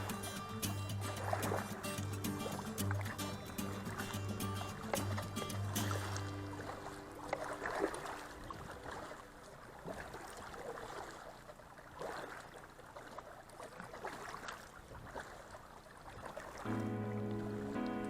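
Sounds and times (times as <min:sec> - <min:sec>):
paddle splashing in water: 0:00.0 - 0:18.0.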